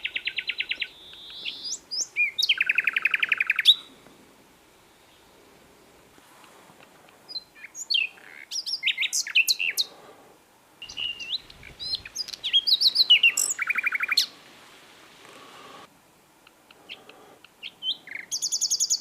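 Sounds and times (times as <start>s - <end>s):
nightingale singing: 0.0s - 3.9s, 7.1s - 10.0s, 10.8s - 14.4s, 16.9s - 19.0s.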